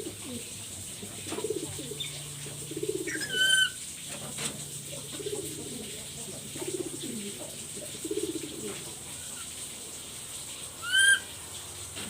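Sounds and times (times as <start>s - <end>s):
parrot buzzy pulsed calls: 2.8s - 3.8s, 10.8s - 11.4s.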